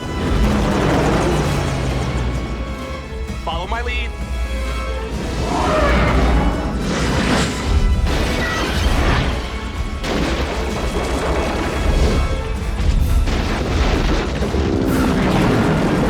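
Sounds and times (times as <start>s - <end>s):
dramatic music score: 0.0s - 16.0s
booms and crashes: 5.1s - 16.0s.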